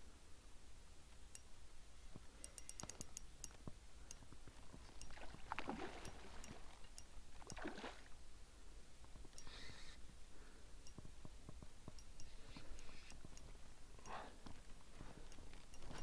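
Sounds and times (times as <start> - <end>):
fishing reel ticking: 2.4 - 4.3, 4.9 - 5.2, 6.0 - 7.7, 9.3 - 10.1, 11.9 - 14.2.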